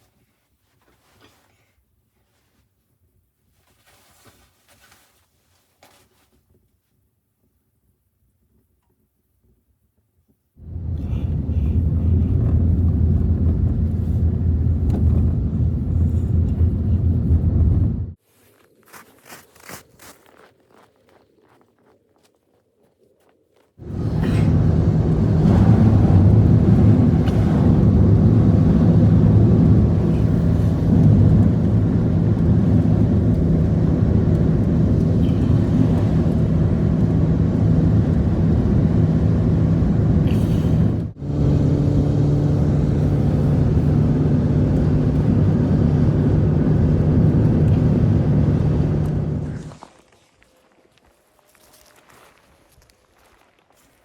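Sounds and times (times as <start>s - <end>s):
vehicle engine droning: 10.6s - 18.2s, 23.8s - 49.8s.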